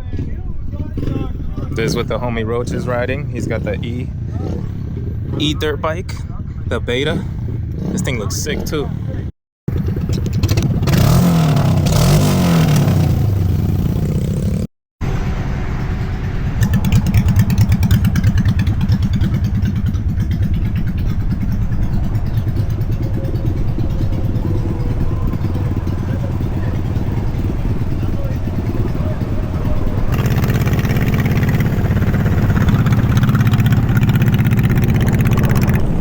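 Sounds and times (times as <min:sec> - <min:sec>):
pit bike engine running: 0:00.0 - 0:36.0
rattle: 0:09.7 - 0:12.0, 0:15.6 - 0:35.9.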